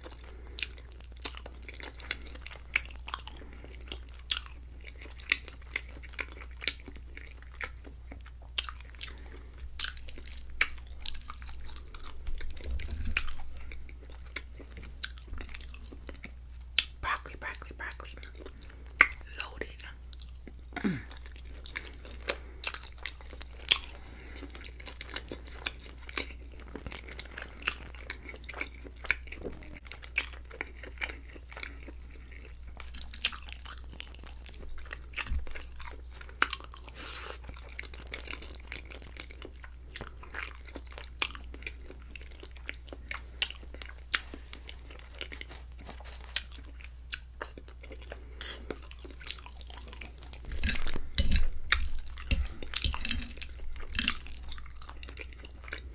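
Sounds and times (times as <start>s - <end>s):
chewing mouth clicks and smacks: 46.2s - 55.9s.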